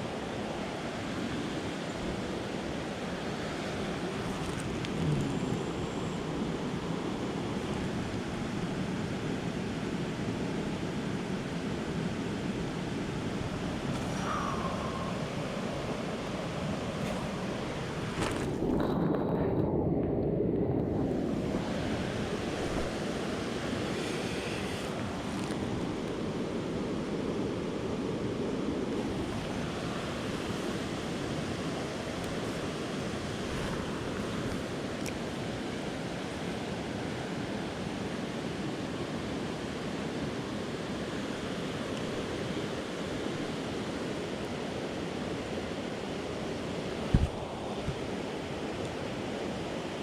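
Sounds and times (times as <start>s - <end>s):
creek water running: 12.5s - 18.8s, 29.0s - 38.0s
brief low thump: 47.1s - 47.4s.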